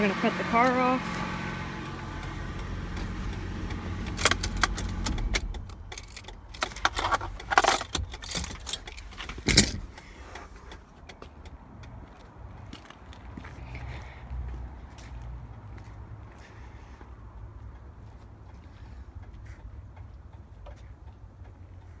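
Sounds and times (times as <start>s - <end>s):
car engine idling: 0.0s - 12.8s
sharp clicks: 1.8s - 12.3s
keys jingling: 2.9s - 10.0s.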